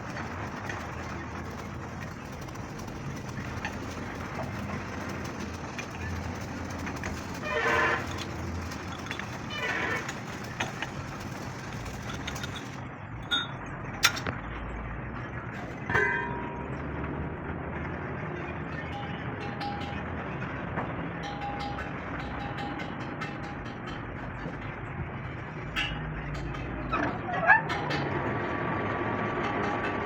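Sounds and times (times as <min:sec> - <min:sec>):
voices: 0:00.0 - 0:12.8
traffic and machinery noise: 0:00.0 - 0:30.0
sharp metal clinks: 0:18.7 - 0:20.4, 0:21.2 - 0:24.8.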